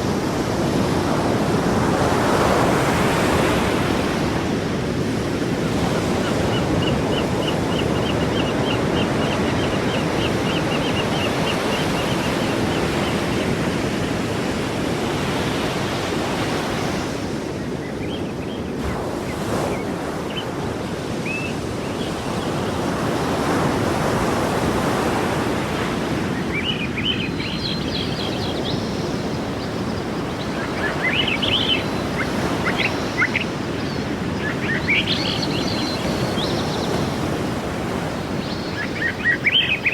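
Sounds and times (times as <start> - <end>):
sea surf washing in: 22.7 - 39.9.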